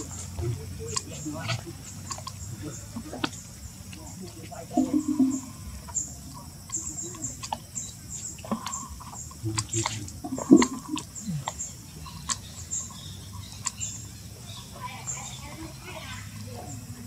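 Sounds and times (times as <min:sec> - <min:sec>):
bird chirps: 0:00.0 - 0:17.0.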